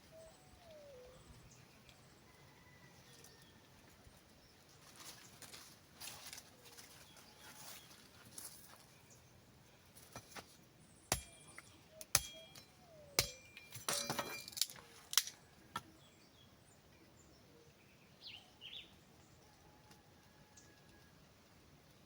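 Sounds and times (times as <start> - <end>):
wooden sticks clicking and knocking: 12.0 - 15.9.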